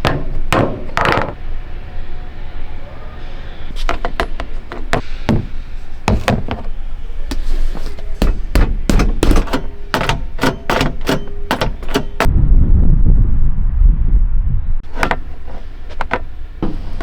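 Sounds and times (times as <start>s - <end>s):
sharp knocks and thuds: 3.8s - 12.3s
low steady rumble: 11.9s - 17.0s.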